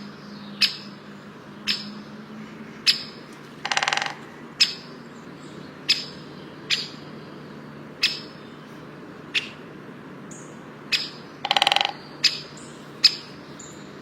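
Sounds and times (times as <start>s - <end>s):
steady low background noise: 0.0s - 14.0s
bird giving sharp calls: 2.8s - 5.0s, 5.8s - 7.0s, 8.0s - 8.5s, 10.9s - 13.4s.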